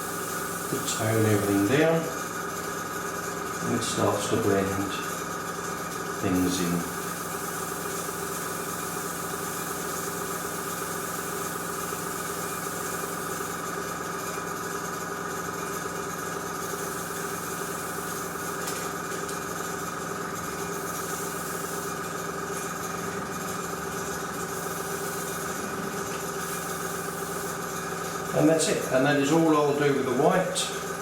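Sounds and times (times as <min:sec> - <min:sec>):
airbrush air hiss: 0:00.0 - 0:01.7, 0:06.2 - 0:13.6, 0:16.6 - 0:19.3, 0:20.5 - 0:28.4
compressor humming: 0:00.0 - 0:31.0.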